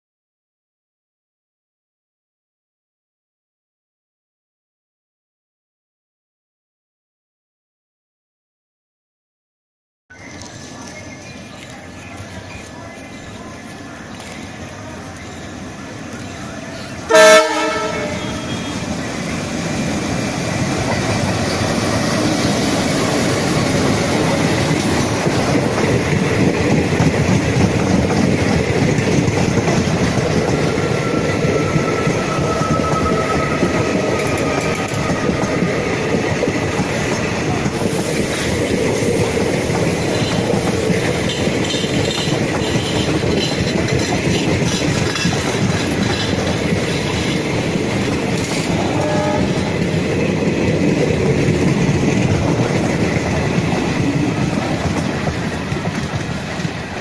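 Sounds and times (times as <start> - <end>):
train wheels clattering over rails: 13.6 - 57.0
loud train horn blast: 17.1 - 19.0, 48.7 - 49.8.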